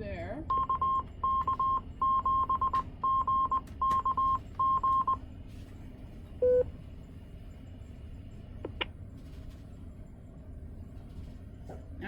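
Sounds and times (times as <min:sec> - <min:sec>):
morse code tone: 0:00.5 - 0:05.2, 0:06.4 - 0:06.6.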